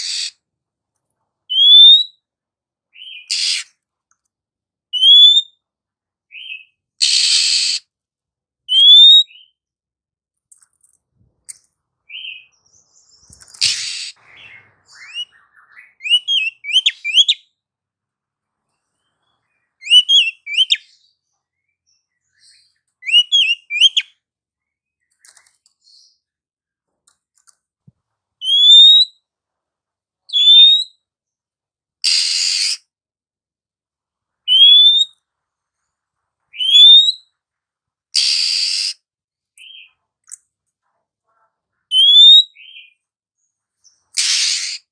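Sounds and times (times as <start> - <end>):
bird harsh rasping bursts: 0.0 - 0.4, 3.3 - 3.7, 7.0 - 7.8, 13.5 - 14.2, 32.0 - 32.8, 38.2 - 39.0, 44.2 - 44.9
bird rising whistles: 38.2 - 39.0.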